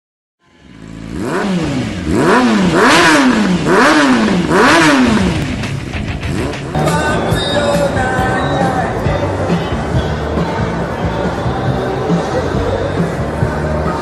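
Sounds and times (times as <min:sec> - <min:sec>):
motorcycle engine revving: 0:00.5 - 0:10.7.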